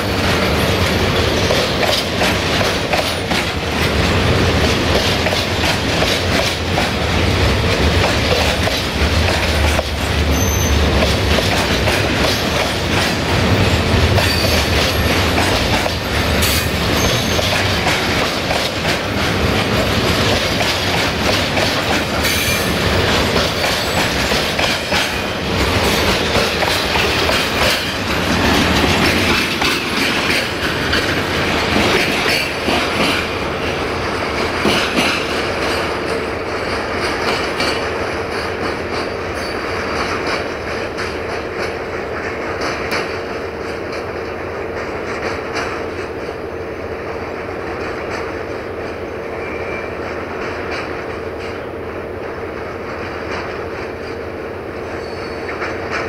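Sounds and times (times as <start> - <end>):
train rumble: 0.0 - 56.0
train wheels clacking over rail joints: 0.0 - 56.0
wheel squeal: 10.2 - 11.0, 13.7 - 15.2, 16.4 - 17.7, 49.4 - 50.0, 55.0 - 55.6.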